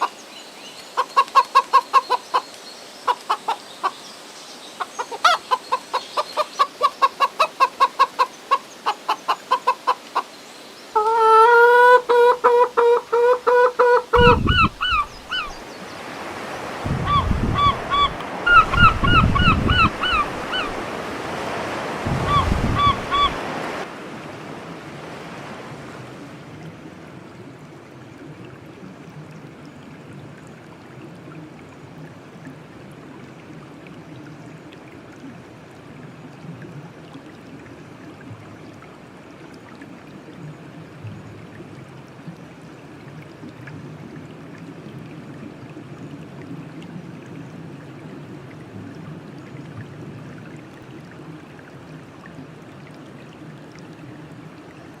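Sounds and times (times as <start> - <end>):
running water rushing: 0.0 - 55.0
short pitched animal calls: 11.0 - 15.6, 17.0 - 20.8, 22.1 - 23.4.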